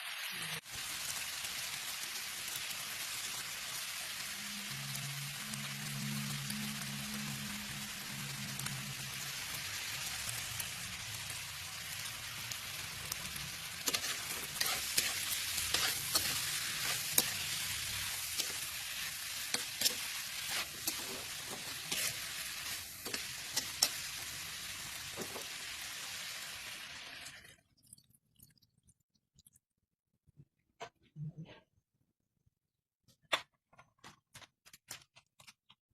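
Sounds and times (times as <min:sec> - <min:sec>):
food sizzling in a pan: 0:00.0 - 0:27.6
utensil scraping a pan: 0:13.8 - 0:24.2.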